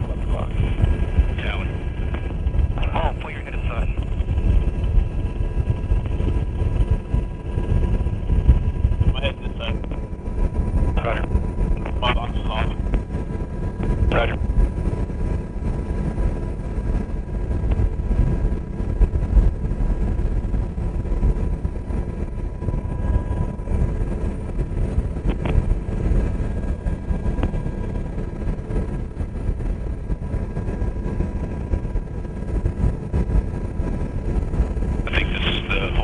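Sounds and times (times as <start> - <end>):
faint turbine whine: 0.0 - 36.0
helicopter rotor rumble: 0.0 - 36.0.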